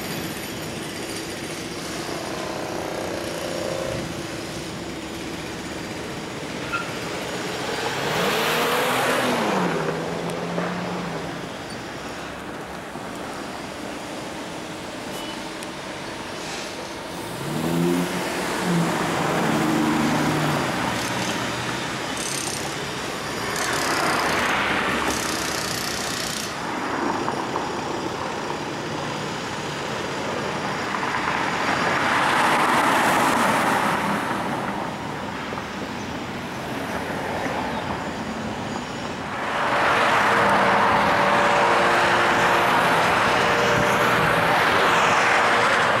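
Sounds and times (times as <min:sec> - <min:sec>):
road noise: 0:00.0 - 0:46.0
car engine pulling away: 0:17.1 - 0:21.6.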